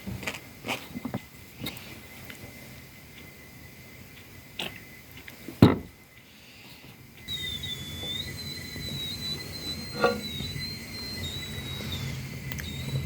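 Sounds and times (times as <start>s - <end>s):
high thin whistling tone: 7.2s - 13.0s.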